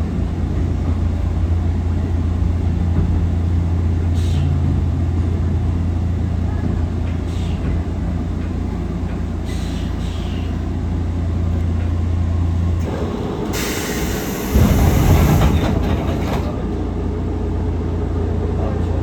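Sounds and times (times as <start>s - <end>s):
electric train hum: 0.0s - 19.0s
heavy train rumble: 0.0s - 19.0s
loud hiss: 13.5s - 15.6s.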